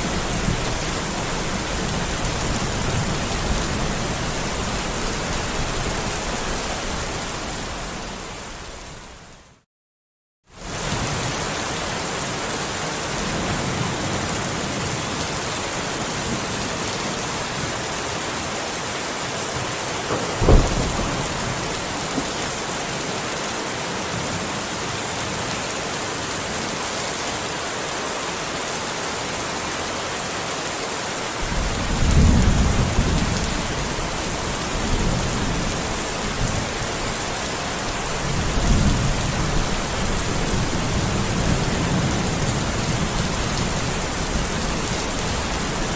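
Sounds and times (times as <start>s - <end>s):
steady rain falling: 0.0s - 9.6s, 10.5s - 45.9s
low rolling thunder: 20.0s - 22.6s, 31.4s - 45.9s
sharp thunderclap: 20.0s - 22.6s, 31.4s - 36.7s.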